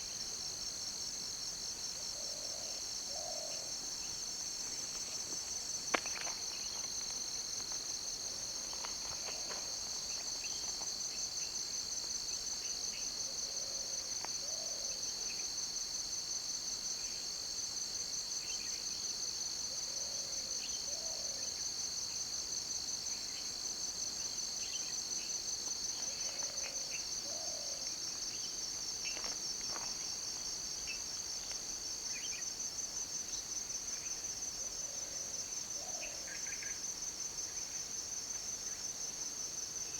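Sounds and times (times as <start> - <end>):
insect chorus trilling: 18.1 - 39.9.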